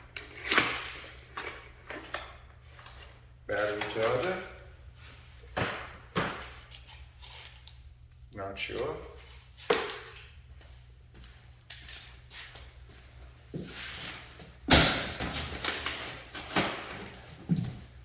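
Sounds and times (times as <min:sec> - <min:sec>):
packing materials rustling: 0:13.6 - 0:18.0.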